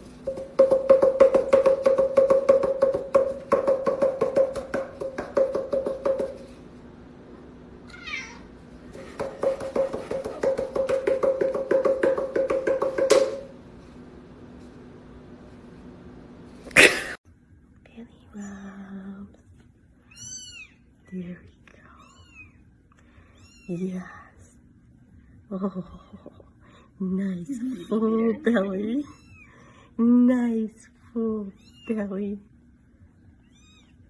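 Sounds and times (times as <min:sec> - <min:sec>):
kitten pulsing cry: 0:07.9 - 0:08.5.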